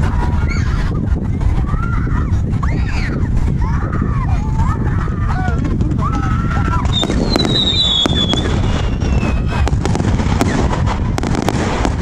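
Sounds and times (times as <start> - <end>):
firework bangs and crackles: 0.0 - 12.0
low rumble: 0.0 - 12.0
firework falling whistle: 6.8 - 9.6.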